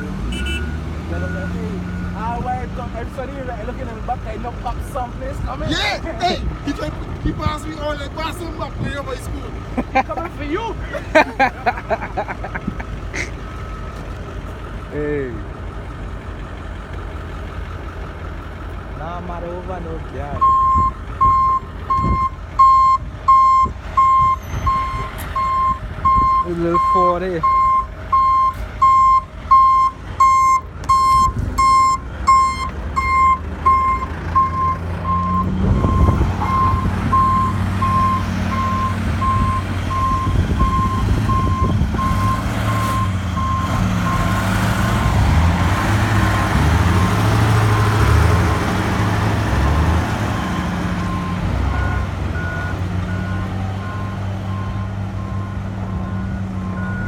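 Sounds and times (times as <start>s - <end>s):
backup alarm beeping: 0.0s - 2.2s, 20.4s - 45.2s, 51.1s - 57.0s
heavy diesel engines revving: 0.0s - 57.0s
higher-pitched backup alarm: 20.4s - 44.4s.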